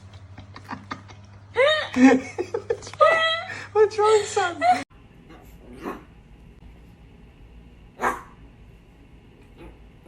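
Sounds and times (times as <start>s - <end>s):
dog barking: 8.0s - 8.4s.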